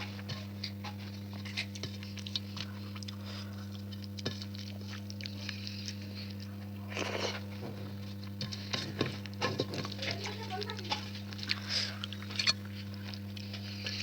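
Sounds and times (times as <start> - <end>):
low electrical hum: 0.0 - 14.0
chewing and wet mouth smacks: 1.6 - 7.4, 11.3 - 13.6.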